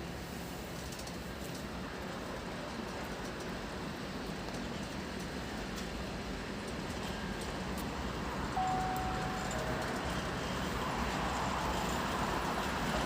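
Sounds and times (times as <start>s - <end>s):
train wheels rumbling: 0.7s - 13.0s
short high descending tone: 8.6s - 10.1s.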